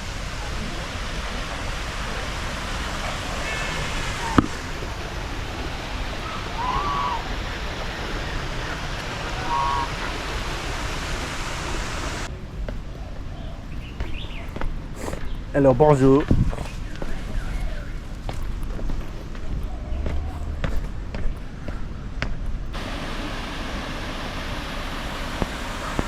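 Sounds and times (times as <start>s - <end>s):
steady rushing noise: 0.0s - 12.9s
short pitched calls: 3.0s - 4.7s, 6.2s - 7.3s, 9.3s - 10.2s.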